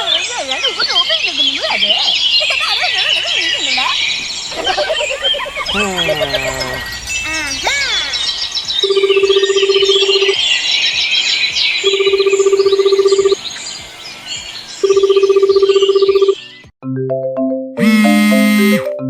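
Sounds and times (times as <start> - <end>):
birds chirping: 0.0 - 16.7
pulsing electronic buzzer tone: 8.8 - 10.4, 11.8 - 13.4, 17.8 - 18.9.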